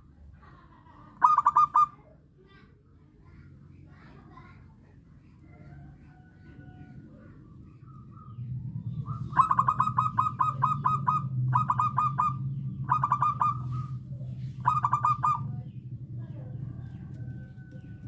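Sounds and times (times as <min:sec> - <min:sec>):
steady low hum: 0:00.0 - 0:18.0
dove cooing: 0:01.2 - 0:02.0, 0:07.8 - 0:15.8.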